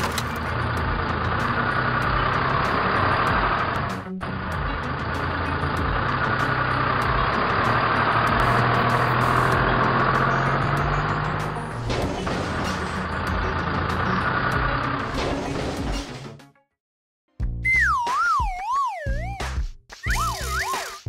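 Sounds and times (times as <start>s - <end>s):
vehicle engine running: 0.0s - 15.1s.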